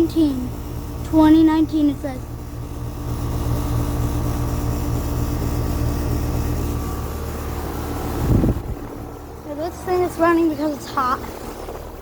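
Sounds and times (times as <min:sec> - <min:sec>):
air conditioner compressor and fan: 0:00.0 - 0:12.0
short low rumble: 0:06.8 - 0:09.3.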